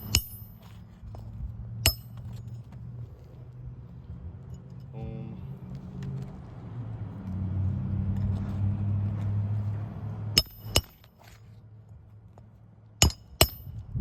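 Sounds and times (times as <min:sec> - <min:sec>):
hammer striking nail: 0:10.4 - 0:11.1, 0:13.0 - 0:13.7.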